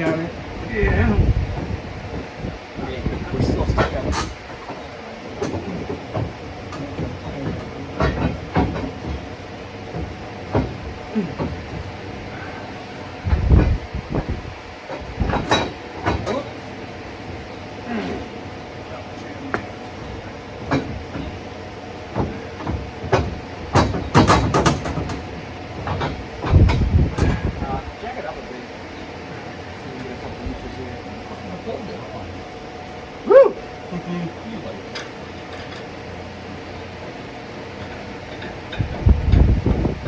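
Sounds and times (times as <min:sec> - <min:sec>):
steady shop hum: 0:00.0 - 0:40.0
metallic clanks and knocks: 0:05.4 - 0:09.2, 0:22.1 - 0:27.5.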